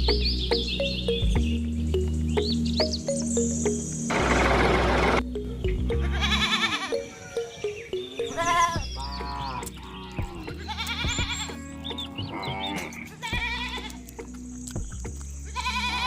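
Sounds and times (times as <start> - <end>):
background music stepped notes: 0.0 - 16.0
farm animals bleating: 5.9 - 14.2, 15.4 - 16.0.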